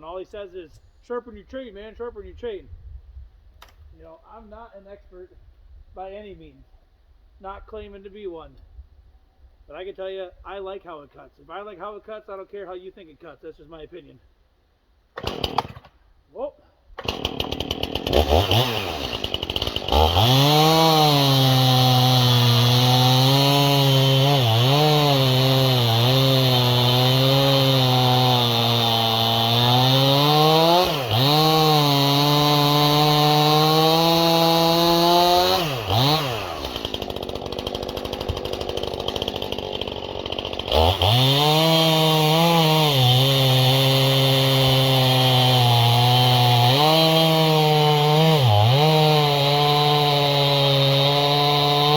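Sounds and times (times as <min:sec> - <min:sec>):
chainsaw cutting log: 0:15.1 - 0:16.0, 0:16.9 - 0:51.9.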